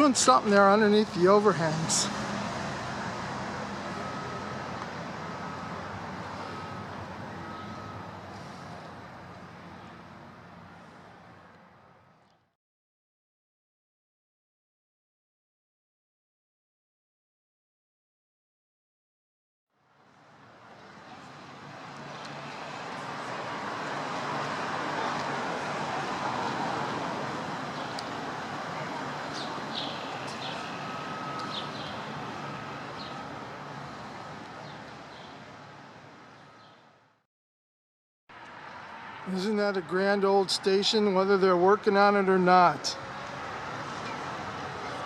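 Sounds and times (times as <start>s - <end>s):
outdoor traffic noise: 0.0s - 12.6s, 19.7s - 37.2s, 38.3s - 45.0s
faint high beeps: 4.0s - 4.6s, 29.3s - 34.0s.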